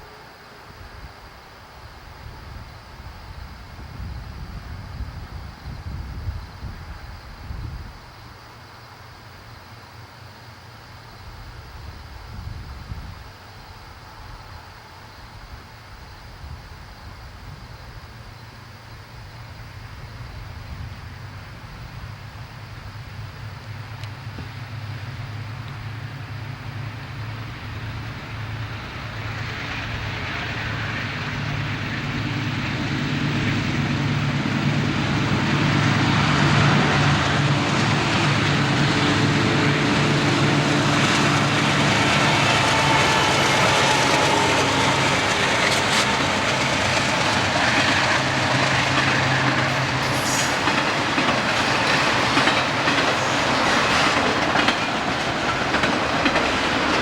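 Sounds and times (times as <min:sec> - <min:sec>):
locomotive engine drone: 0:18.6 - 0:57.0
train wheels clacking over rail joints: 0:36.0 - 0:57.0.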